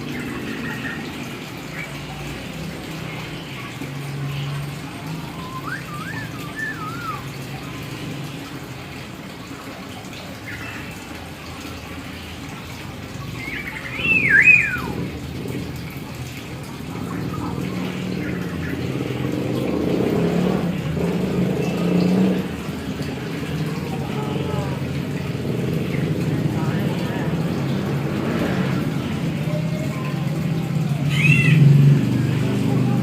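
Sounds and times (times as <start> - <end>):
bird whistled calls: 5.2 - 7.4, 13.4 - 15.0.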